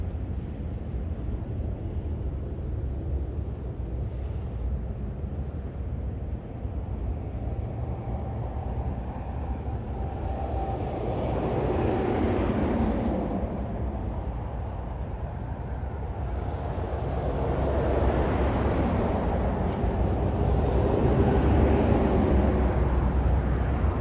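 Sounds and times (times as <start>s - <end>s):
highway traffic rumbling: 6.4s - 24.0s.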